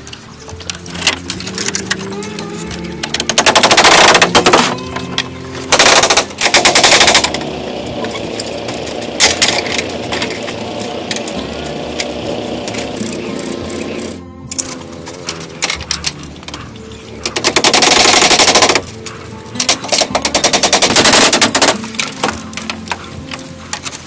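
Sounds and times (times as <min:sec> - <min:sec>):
sustained tones: 0:00.0 - 0:20.8
rapid mechanical rattling: 0:03.0 - 0:16.6, 0:17.2 - 0:22.9.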